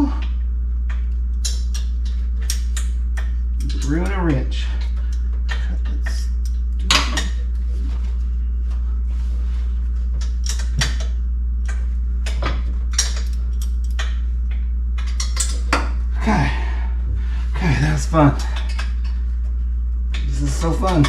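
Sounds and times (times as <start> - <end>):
steady low hum: 0.0 - 21.0
sharp metal clicks and knocks: 0.9 - 4.2.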